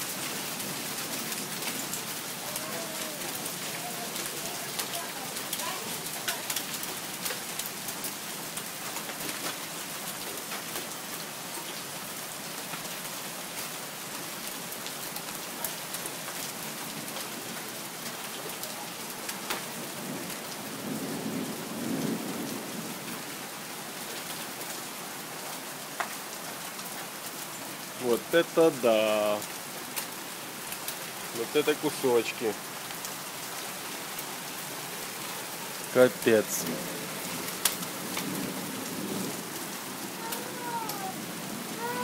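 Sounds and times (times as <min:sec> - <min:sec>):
hail falling: 0:00.0 - 0:42.0
hailstones clicking on hard surfaces: 0:00.1 - 0:11.2, 0:14.5 - 0:20.3, 0:26.0 - 0:26.8, 0:28.0 - 0:34.3, 0:35.1 - 0:41.1.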